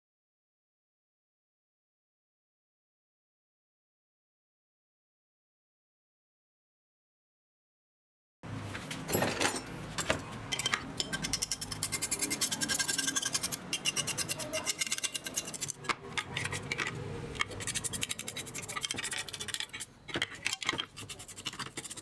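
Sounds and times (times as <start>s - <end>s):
rapid scrubbing strokes: 11.0s - 22.0s.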